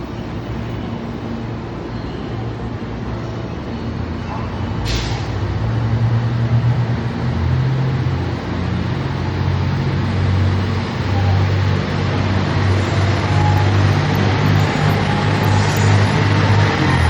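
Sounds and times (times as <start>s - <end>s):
diesel engine under load: 3.5s - 17.0s.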